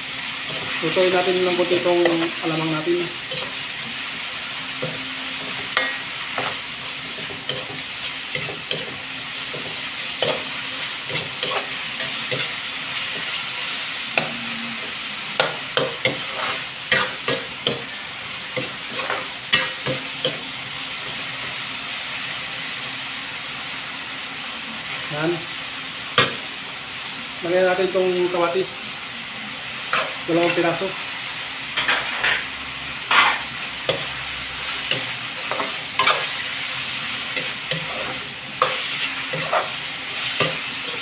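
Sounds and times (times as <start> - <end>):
meat sizzling in a wok: 0.0 - 41.0
metal spatula scraping a pan: 11.1 - 13.4, 15.4 - 17.8, 18.6 - 19.9, 33.1 - 36.5, 37.2 - 41.0.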